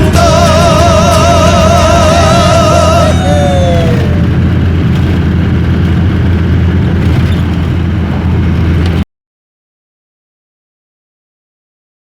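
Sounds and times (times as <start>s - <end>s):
person singing: 0.0s - 4.3s
pickup engine droning: 0.0s - 9.0s.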